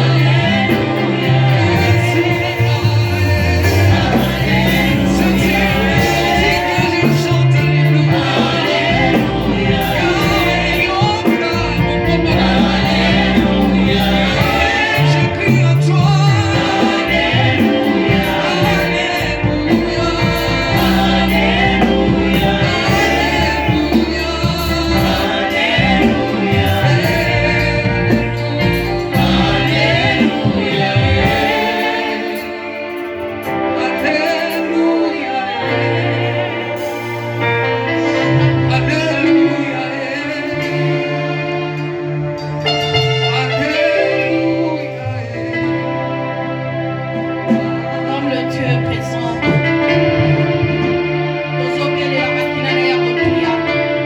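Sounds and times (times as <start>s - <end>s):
steady bass line: 0.0s - 32.3s
gospel choir singing: 0.0s - 54.0s.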